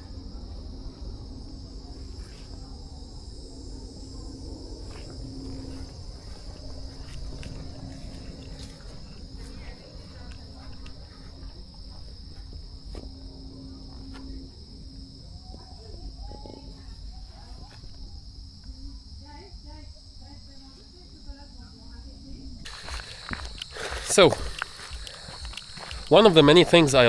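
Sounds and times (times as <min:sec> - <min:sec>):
low rumble: 0:00.0 - 0:20.6
insects trilling: 0:00.0 - 0:27.0
faint clicks: 0:22.7 - 0:26.3.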